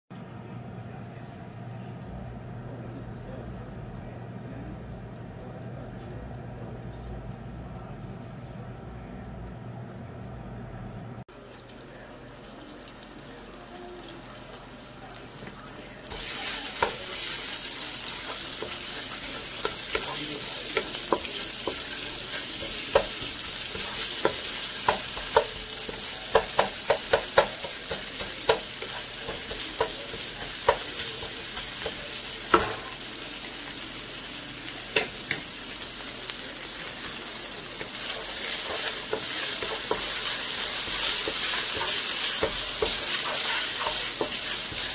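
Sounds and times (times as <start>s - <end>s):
ginger and garlic sizzling in oil: 11.3s - 44.9s
spatula knocking against pan: 19.4s - 32.9s, 38.7s - 44.9s.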